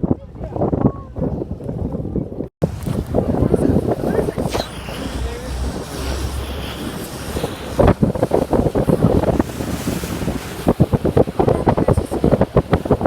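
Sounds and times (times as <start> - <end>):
wind buffeting microphone: 0.0 - 13.0
steady low rumble: 2.6 - 9.7
rushing water: 2.6 - 13.0.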